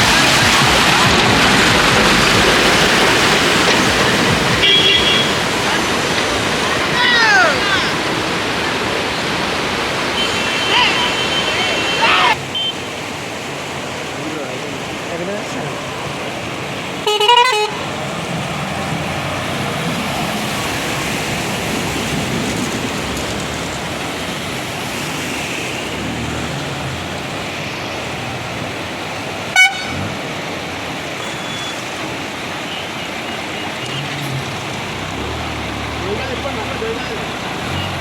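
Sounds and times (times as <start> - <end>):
traffic wading through flood water: 0.0 - 38.0
car horn honking: 4.5 - 5.4, 10.2 - 12.9, 17.0 - 17.9, 29.5 - 30.1.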